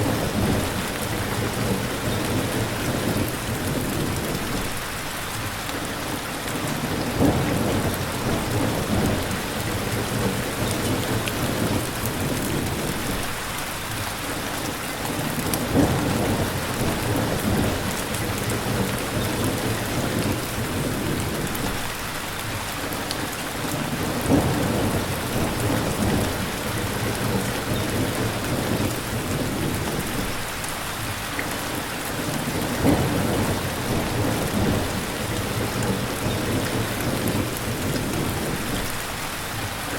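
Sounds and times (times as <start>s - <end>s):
distant thunder: 0.0s - 4.8s, 6.8s - 13.3s, 15.3s - 21.9s, 24.0s - 30.5s, 32.2s - 39.0s
heavy rain: 0.0s - 39.9s.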